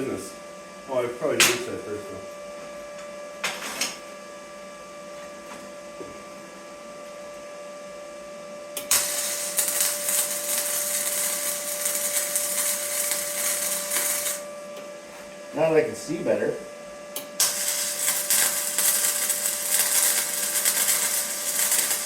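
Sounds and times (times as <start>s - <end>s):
steady hum: 0.0s - 22.0s
welder crackling sizzle: 3.3s - 4.0s, 8.7s - 14.9s, 15.5s - 22.0s.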